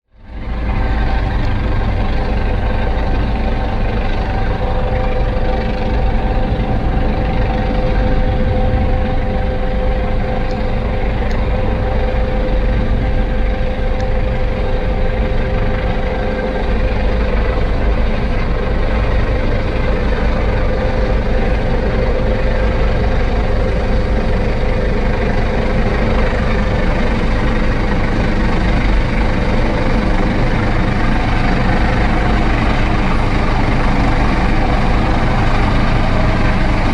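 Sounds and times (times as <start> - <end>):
helicopter hovering: 0.1 - 36.9.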